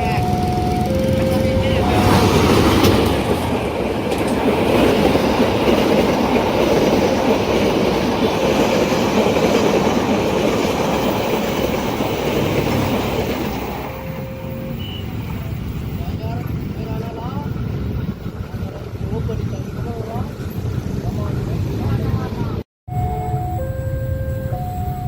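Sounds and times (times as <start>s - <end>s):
train wheels clattering over rails: 0.4s - 14.6s.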